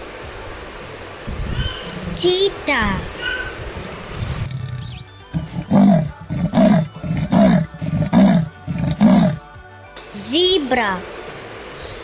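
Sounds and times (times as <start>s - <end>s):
cheetah calling: 1.4s - 9.4s.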